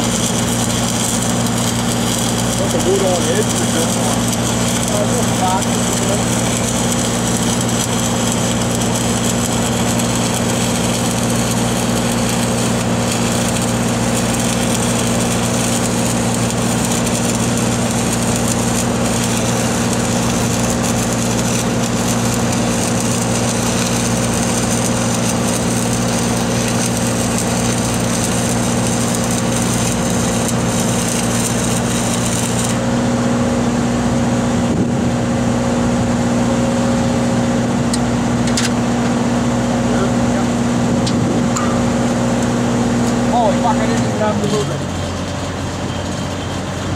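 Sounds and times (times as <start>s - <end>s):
arc welding crackling hiss: 0.0s - 32.9s
welding machine engine running: 0.0s - 46.9s.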